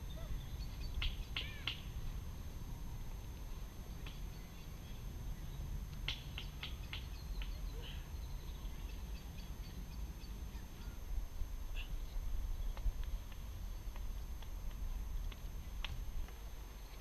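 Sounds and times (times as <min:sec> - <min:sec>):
low steady rumble: 0:00.0 - 0:17.0
birds chirping: 0:03.5 - 0:11.1.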